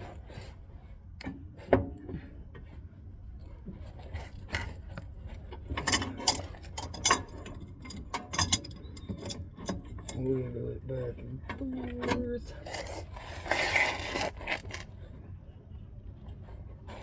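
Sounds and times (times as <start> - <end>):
metal wrench clanking on metal: 5.7 - 10.3.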